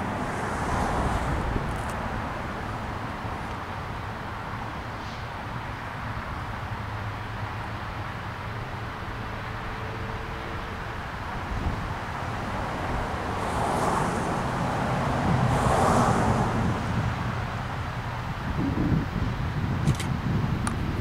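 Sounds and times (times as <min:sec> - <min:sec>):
distant train rumble: 0:00.0 - 0:21.0
hiss: 0:04.9 - 0:05.5.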